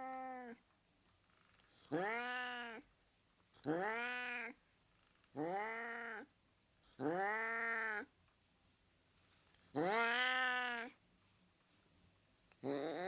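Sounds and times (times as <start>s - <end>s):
cat meowing: 0.0s - 0.6s, 1.9s - 2.9s, 3.6s - 4.6s, 5.4s - 6.3s, 7.0s - 8.1s, 9.8s - 11.0s.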